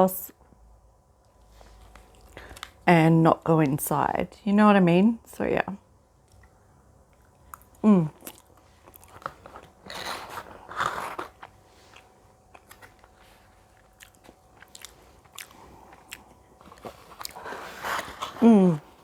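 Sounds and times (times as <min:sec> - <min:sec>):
person chewing crunchy food: 0:06.2 - 0:19.0
person humming: 0:07.8 - 0:08.2, 0:18.2 - 0:19.0.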